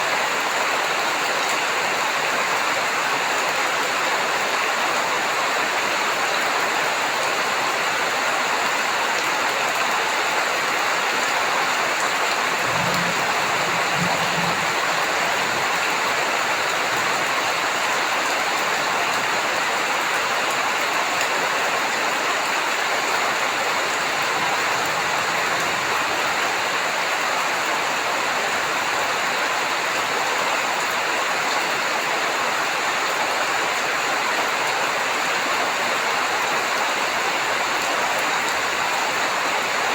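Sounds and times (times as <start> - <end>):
heavy rain falling: 0.0 - 39.9
low rumble: 12.5 - 17.2.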